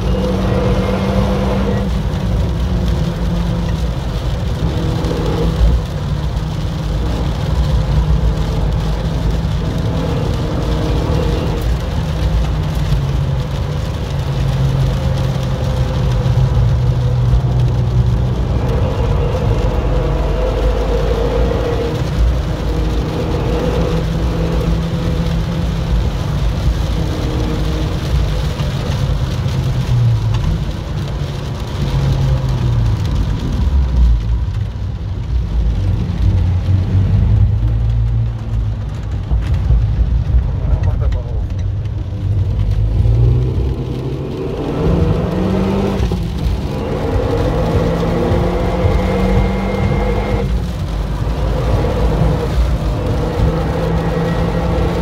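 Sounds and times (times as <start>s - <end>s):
car engine running under load: 0.0s - 55.0s
rain and spray hissing on car: 0.0s - 55.0s.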